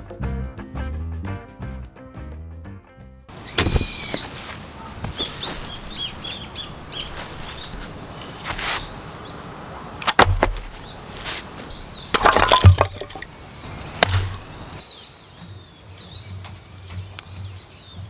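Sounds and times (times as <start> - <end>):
faint bird calls: 3.4 - 8.1
firewood snapping and cracking: 10.0 - 10.8, 12.1 - 13.3, 14.0 - 14.6.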